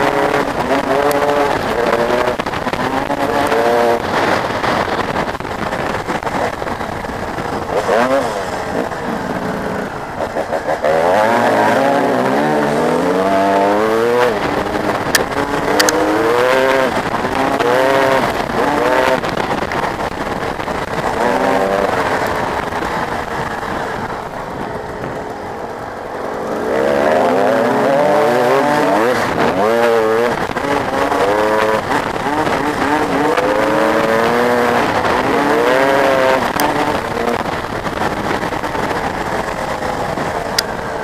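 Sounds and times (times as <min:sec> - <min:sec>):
dirt bike engines revving: 0:00.0 - 0:41.0.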